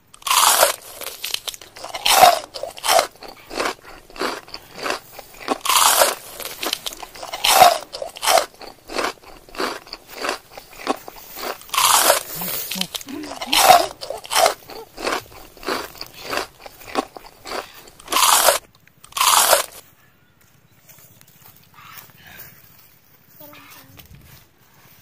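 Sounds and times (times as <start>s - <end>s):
crunchy chewing: 0.0s - 19.9s
crunchy fruit bites: 0.1s - 19.8s.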